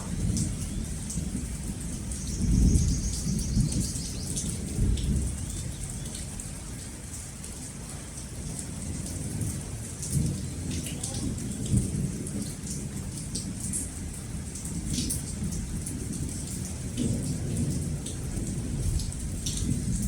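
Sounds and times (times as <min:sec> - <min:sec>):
thunder rumbling: 0:00.0 - 0:05.4
rain pattering: 0:00.0 - 0:20.0.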